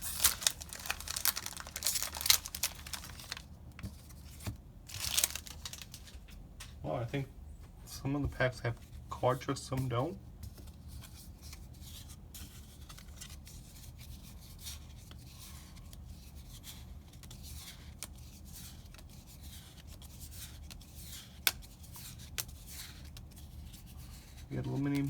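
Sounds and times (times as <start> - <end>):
cards rubbing and rustling: 0.0 - 6.4
low steady hum: 0.0 - 13.8.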